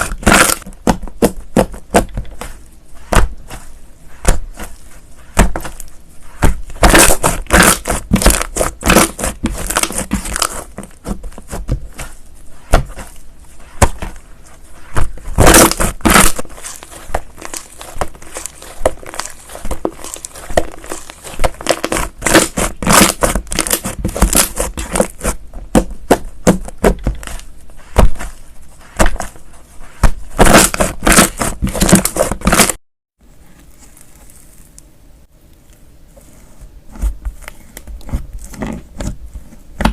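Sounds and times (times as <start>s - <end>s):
slime popping and crackling: 0.0s - 2.2s, 6.4s - 11.6s, 15.0s - 27.4s, 30.4s - 32.8s.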